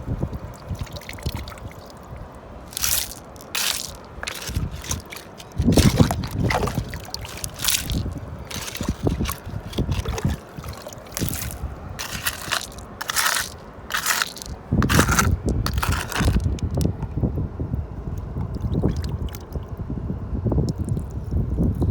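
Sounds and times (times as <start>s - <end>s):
wet crunching and sloshing: 0.0s - 17.0s.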